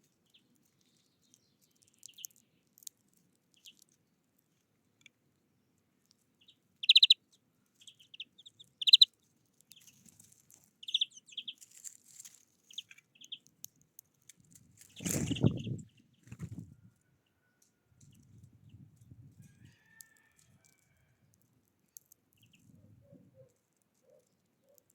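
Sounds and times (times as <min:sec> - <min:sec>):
small birds chirping: 0:00.0 - 0:05.1, 0:06.0 - 0:20.8, 0:21.4 - 0:24.9
loud trilled bird calls: 0:06.8 - 0:07.2, 0:07.8 - 0:09.1, 0:10.8 - 0:11.6
rustling noise: 0:09.8 - 0:10.8, 0:11.6 - 0:13.0, 0:14.2 - 0:16.8.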